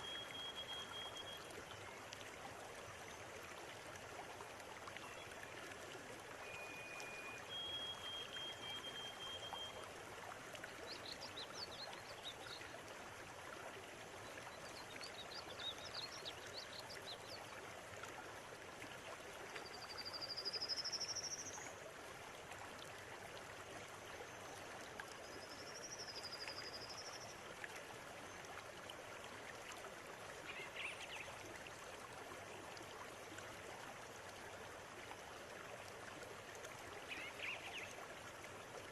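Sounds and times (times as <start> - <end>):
river water flowing over stones: 0.0 - 38.9.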